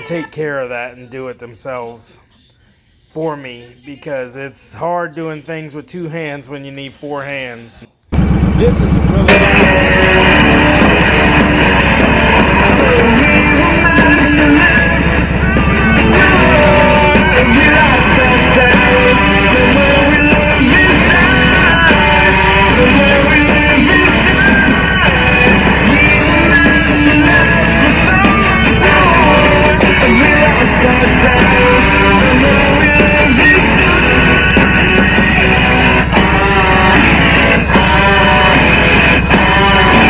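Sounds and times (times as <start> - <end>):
rock song with electric guitar: 8.2 - 40.0.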